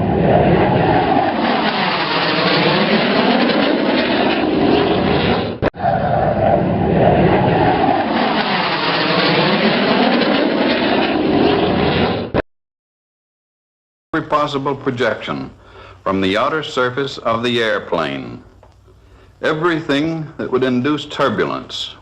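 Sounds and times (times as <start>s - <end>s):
propeller airplane engines running: 0.0s - 5.7s, 7.0s - 12.2s.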